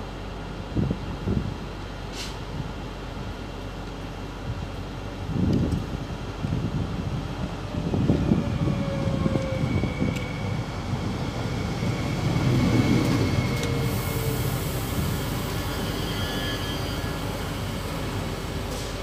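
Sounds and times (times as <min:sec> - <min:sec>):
train wheels rumbling on rails: 0:00.0 - 0:19.0
train whine sliding down: 0:06.5 - 0:19.0.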